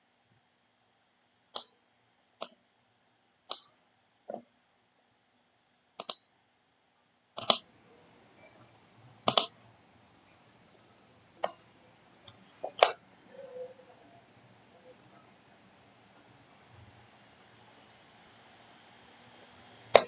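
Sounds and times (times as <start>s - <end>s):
computer mouse clicking: 6.0s - 6.2s, 7.4s - 7.6s, 9.3s - 9.6s, 12.2s - 13.0s.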